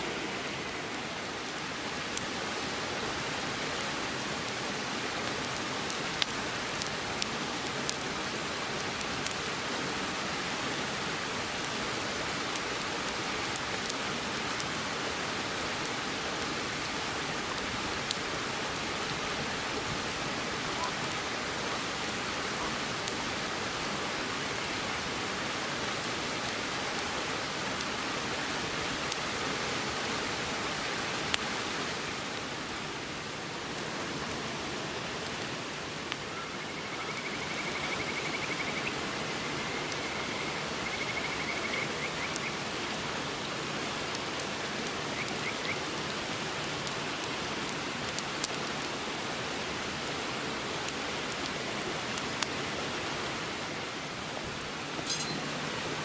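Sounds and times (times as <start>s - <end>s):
campfire crackling and popping: 0.0s - 10.2s, 10.8s - 22.2s, 28.9s - 29.3s, 30.8s - 31.6s, 32.3s - 52.6s, 54.4s - 56.0s
river rushing: 0.0s - 56.0s
faint high trill: 55.0s - 55.6s.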